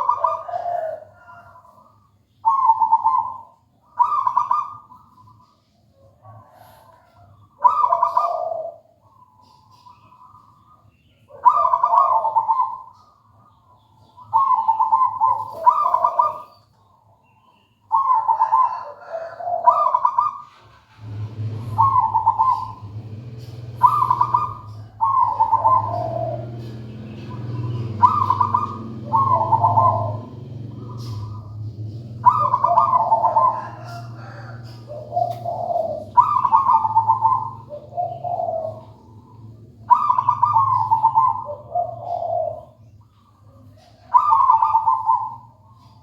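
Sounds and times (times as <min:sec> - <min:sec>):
dove cooing: 0:00.0 - 0:16.7, 0:17.9 - 0:46.0.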